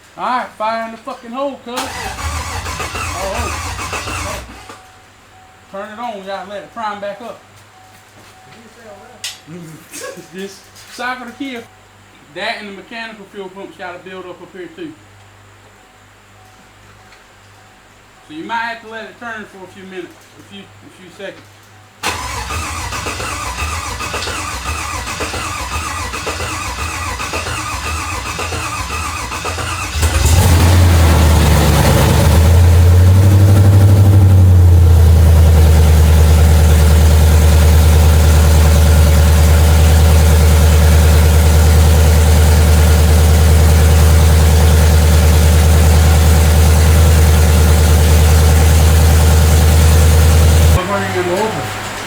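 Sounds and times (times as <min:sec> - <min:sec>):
engine cranking on starter: 0:01.8 - 0:04.8, 0:22.0 - 0:52.0
engine revving and idling: 0:01.8 - 0:04.8, 0:22.1 - 0:51.9.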